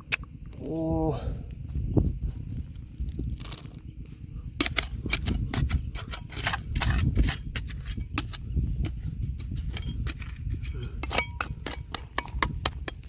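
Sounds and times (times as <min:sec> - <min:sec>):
stones and gravel knocking: 0:02.4 - 0:05.8, 0:06.4 - 0:13.0.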